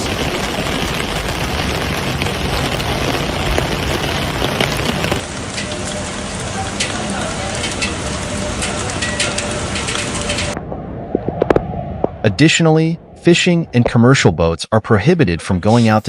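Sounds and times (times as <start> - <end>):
heavy rain hissing: 0.0 - 10.6
rain patters and crackles: 0.0 - 12.9.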